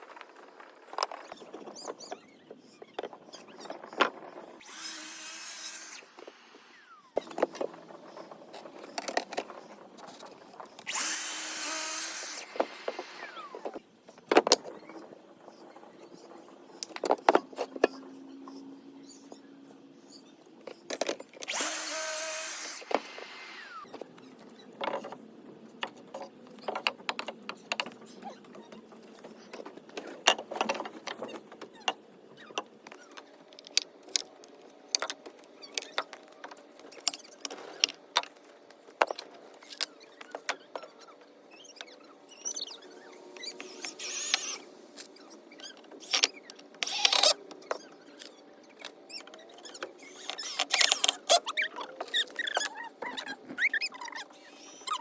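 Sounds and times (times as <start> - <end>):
power driver driving screws: 4.6 - 6.7, 10.8 - 13.6, 21.4 - 23.8, 43.4 - 44.6, 46.0 - 47.4.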